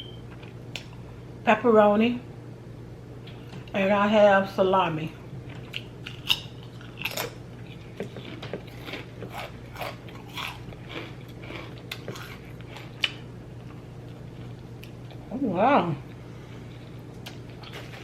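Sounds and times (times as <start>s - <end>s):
chewing crunches: 5.4s - 15.3s, 16.7s - 18.0s.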